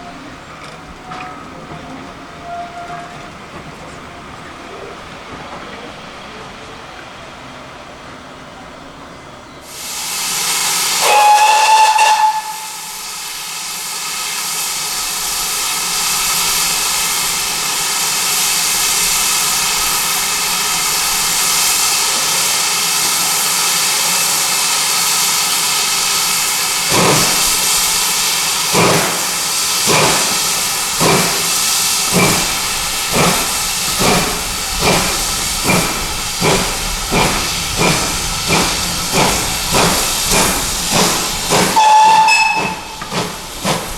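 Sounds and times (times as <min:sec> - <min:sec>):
steam locomotive whistle: 0:02.4 - 0:03.1, 0:10.0 - 0:13.7, 0:41.7 - 0:43.1
hiss of steam: 0:09.6 - 0:43.9
steam locomotive exhaust beats: 0:09.6 - 0:43.9.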